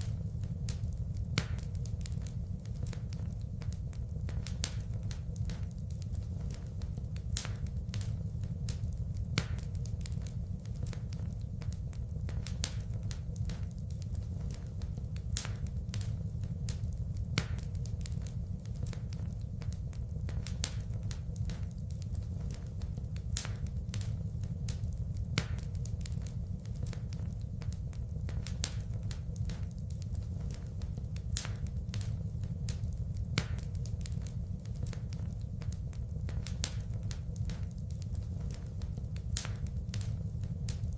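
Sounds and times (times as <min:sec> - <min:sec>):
fire popping: 0:00.0 - 0:40.9
low fire rumble: 0:00.0 - 0:40.9
wood fire crackling: 0:00.0 - 0:40.9.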